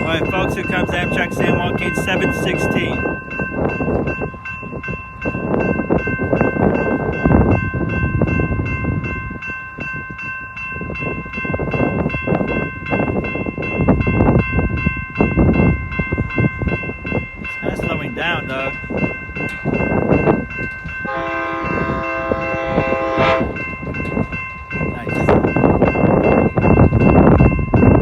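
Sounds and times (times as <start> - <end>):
passenger train rumbling: 0.0 - 28.0
railroad crossing bell ringing: 0.0 - 28.0.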